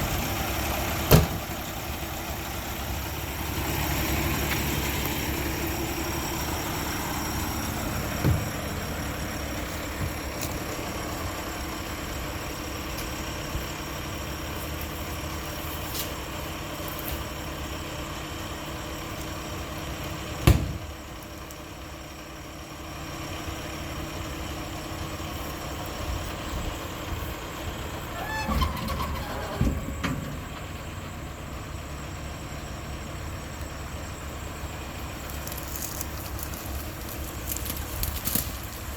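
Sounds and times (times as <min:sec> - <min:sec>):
diesel truck engine idling: 0:00.0 - 0:38.9
metal clanks: 0:28.1 - 0:30.8.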